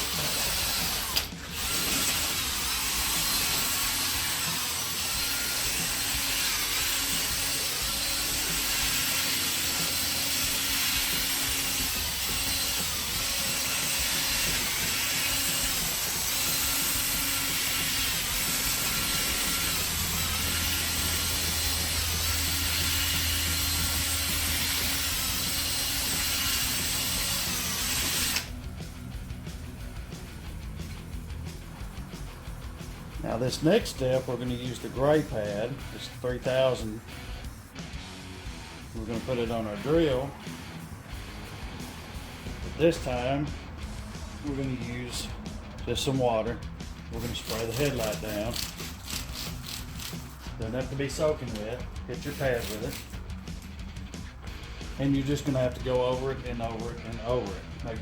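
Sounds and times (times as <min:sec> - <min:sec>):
cordless drill sanding plastic: 0:00.0 - 0:28.6, 0:47.1 - 0:53.6.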